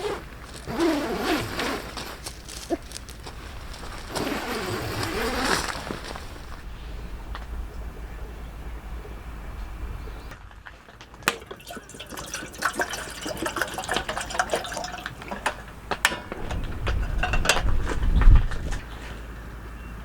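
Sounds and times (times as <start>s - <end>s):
low rumble: 5.9s - 10.7s, 15.8s - 19.0s
water dripping and splashing: 10.7s - 18.5s.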